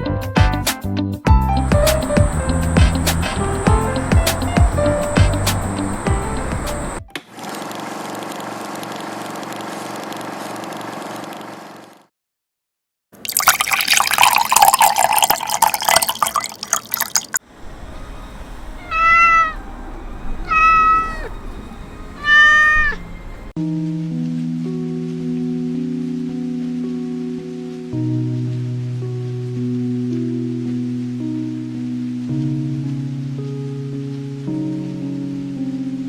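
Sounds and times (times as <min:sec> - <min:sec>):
steady hum: 0:01.8 - 0:07.0
liquid splashing: 0:13.2 - 0:17.4
cat meowing: 0:18.6 - 0:23.5.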